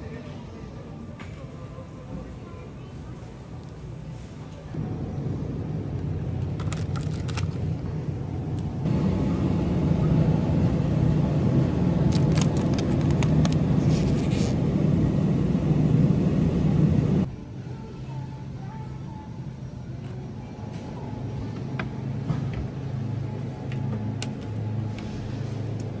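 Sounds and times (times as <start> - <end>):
low rumble with hum: 4.8 - 17.3.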